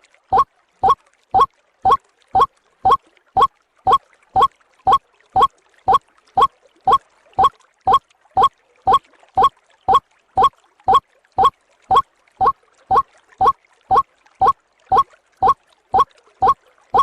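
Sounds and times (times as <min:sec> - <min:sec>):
waterhen calling: 0:00.3 - 0:06.0, 0:06.9 - 0:08.0, 0:11.4 - 0:12.0, 0:13.9 - 0:17.0.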